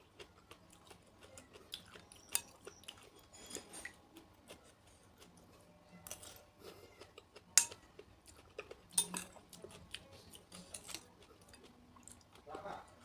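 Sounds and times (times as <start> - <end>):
spoon clinking against a bowl: 2.2 - 3.9, 7.6 - 7.8, 8.9 - 9.4.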